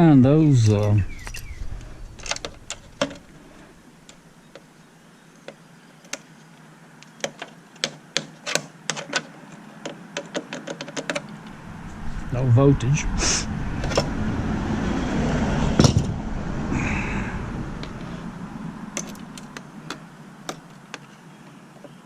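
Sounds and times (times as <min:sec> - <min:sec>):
hand tools clicking and tapping: 0:02.2 - 0:03.4, 0:07.0 - 0:11.4, 0:18.9 - 0:21.1.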